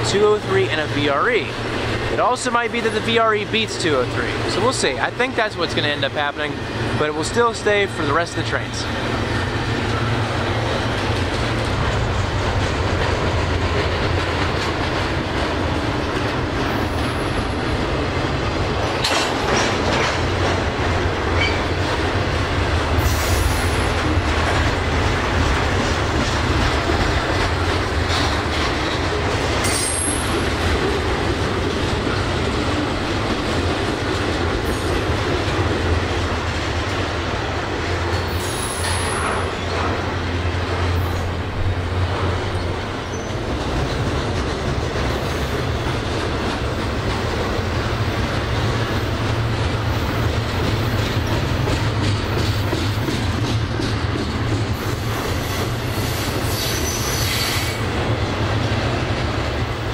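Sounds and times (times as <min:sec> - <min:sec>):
freight train rumbling and rattling: 0:00.0 - 0:59.9
high wheel squeals: 0:55.5 - 0:57.8.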